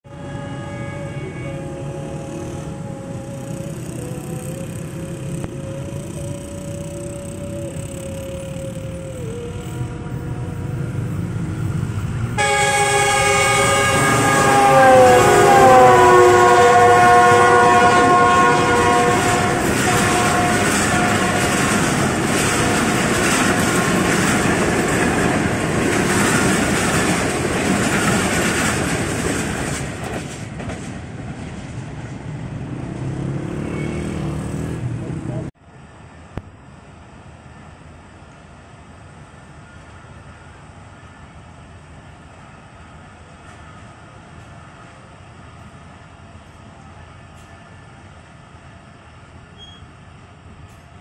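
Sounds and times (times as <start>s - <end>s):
train horn: 0.0s - 11.6s, 12.4s - 23.9s
train coaches clattering over rails: 13.6s - 31.9s.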